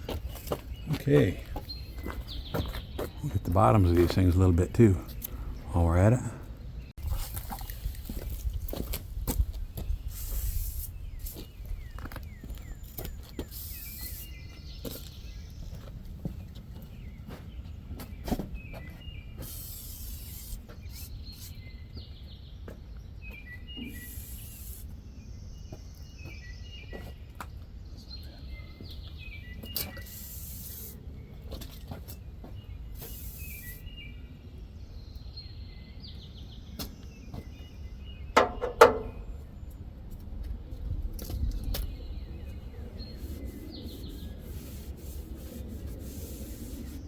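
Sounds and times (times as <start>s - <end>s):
songbirds chirping: 0.0s - 47.0s
sharp knocks: 38.4s - 39.2s.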